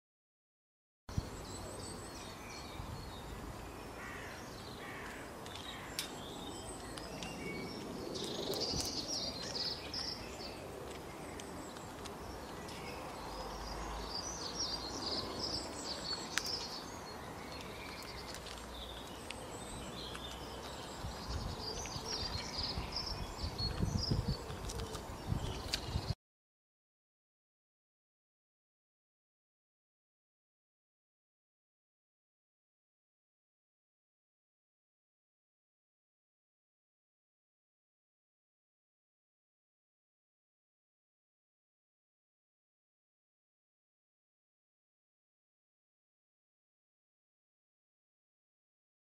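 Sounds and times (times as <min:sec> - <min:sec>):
outdoor background noise: 0:01.1 - 0:26.2
songbirds chirping and twittering: 0:01.1 - 0:26.2.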